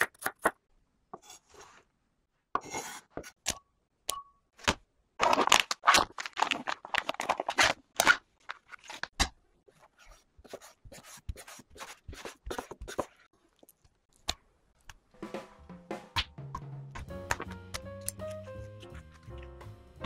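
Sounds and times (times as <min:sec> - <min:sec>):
plastic film crinkling and tearing: 0:05.2 - 0:09.1.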